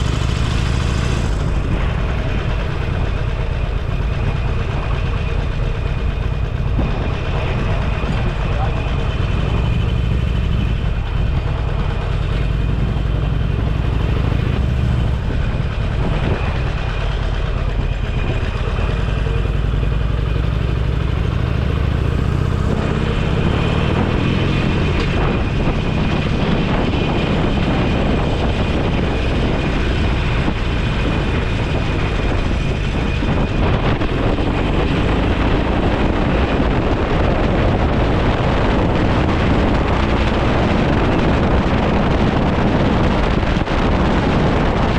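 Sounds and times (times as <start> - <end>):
motorcycle engine humming: 0.0 - 44.9
wind and road noise: 0.0 - 44.9.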